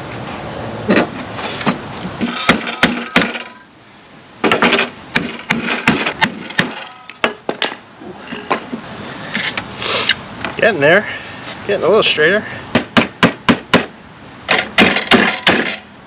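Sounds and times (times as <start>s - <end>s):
hammer striking sheet metal: 14.5s - 15.8s.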